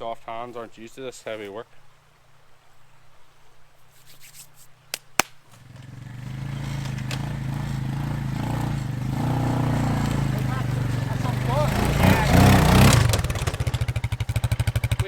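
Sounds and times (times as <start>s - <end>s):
quad bike engine running: 5.6s - 15.0s.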